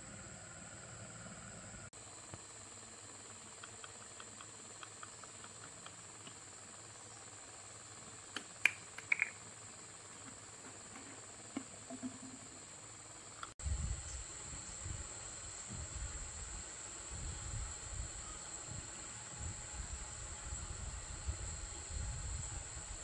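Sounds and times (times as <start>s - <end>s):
high-pitched insect chirring: 13.3s - 23.0s.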